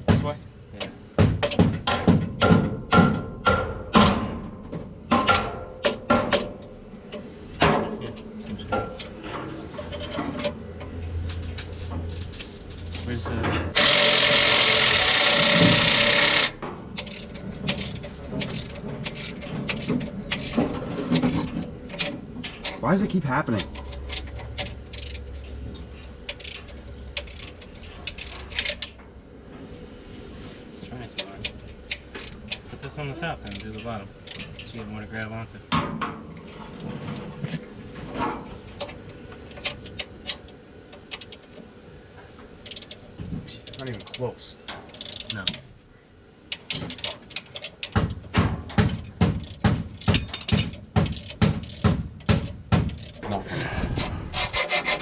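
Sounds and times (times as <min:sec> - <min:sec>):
power tool running: 0:13.7 - 0:16.6
metallic clicks of hand tools: 0:26.3 - 0:28.9, 0:42.6 - 0:43.0, 0:44.9 - 0:45.6, 0:49.4 - 0:53.2.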